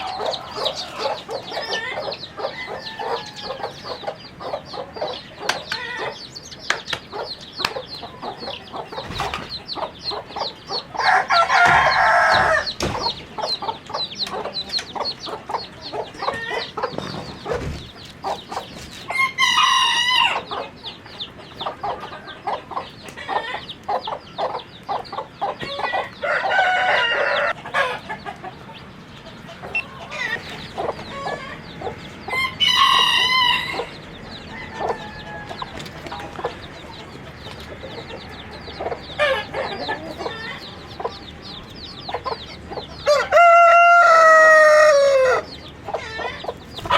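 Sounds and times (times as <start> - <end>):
rooster crowing: 0.0 - 3.8, 11.0 - 12.8, 19.1 - 20.5, 26.2 - 28.0, 32.3 - 35.8, 43.0 - 45.5
chickens clucking: 0.0 - 46.9.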